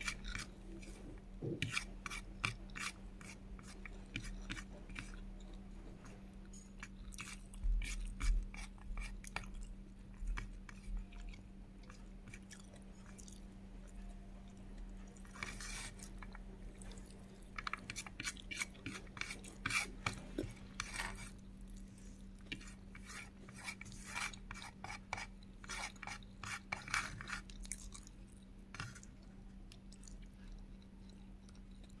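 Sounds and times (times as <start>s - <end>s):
faint electrical hum: 0.0s - 32.0s
chewing and wet mouth clicks: 27.4s - 32.0s.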